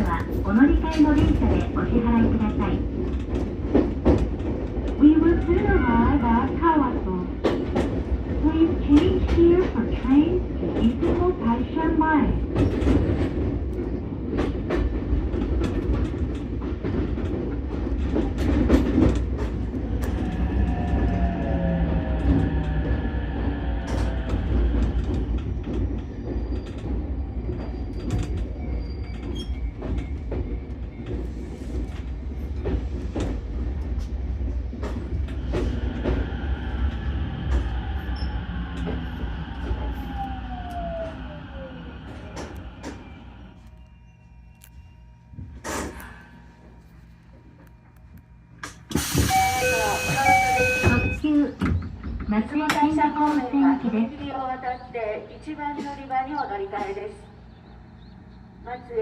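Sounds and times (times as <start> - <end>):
train rumbling on rails: 0.0 - 59.0
wheel squeal: 25.4 - 31.0.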